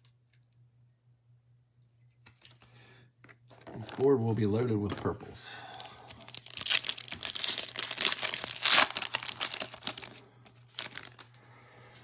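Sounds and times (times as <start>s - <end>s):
foil wrapper crinkling and tearing: 5.7s - 11.4s.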